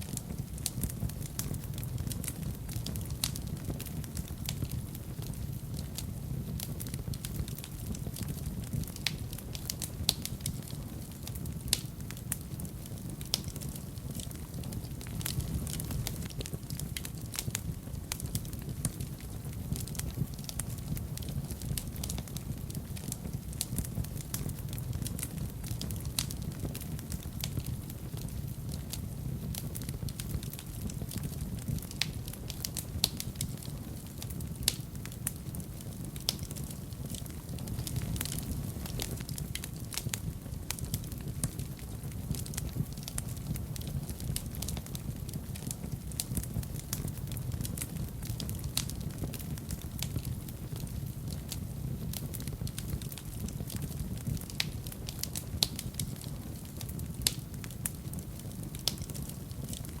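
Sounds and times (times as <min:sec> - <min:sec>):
low rumble of flames: 0:00.0 - 1:00.0
wood fire crackling and popping: 0:00.0 - 1:00.0.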